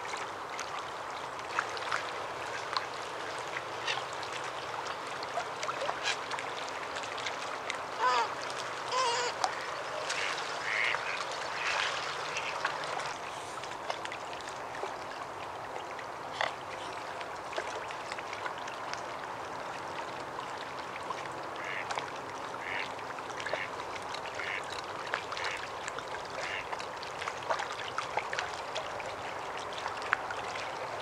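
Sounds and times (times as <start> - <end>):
waterbirds calling: 0.6 - 18.4, 21.0 - 25.7, 26.3 - 28.0.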